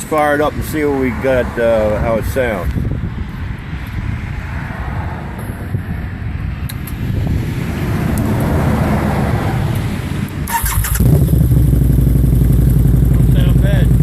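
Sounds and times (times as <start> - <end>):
wind on microphone: 0.0 - 11.4
low vehicle rumble: 0.0 - 14.0
sharp click: 6.6 - 7.0.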